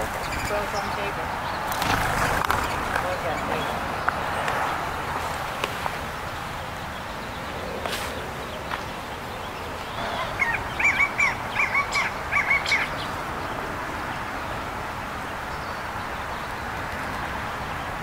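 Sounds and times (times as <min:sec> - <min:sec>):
bird calling: 0:00.0 - 0:13.7.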